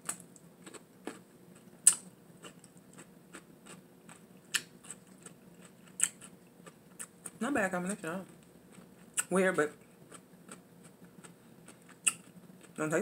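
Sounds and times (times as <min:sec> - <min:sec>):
crunchy chewing: 0:00.0 - 0:07.4, 0:10.0 - 0:12.8.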